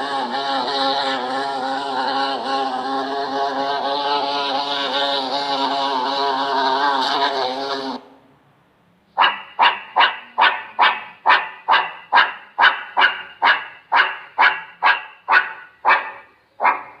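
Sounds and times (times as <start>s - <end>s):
dog barking: 9.2s - 17.0s.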